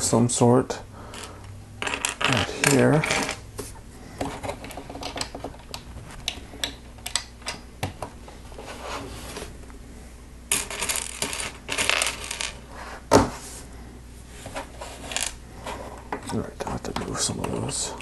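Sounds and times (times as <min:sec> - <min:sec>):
plastic pieces rattling: 0:01.1 - 0:03.4, 0:10.5 - 0:12.6.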